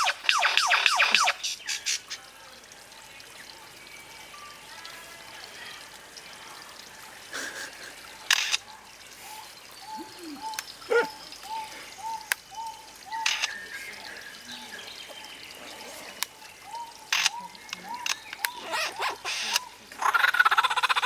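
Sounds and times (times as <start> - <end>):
harsh bird squawks: 0.0 - 2.0, 17.1 - 21.0.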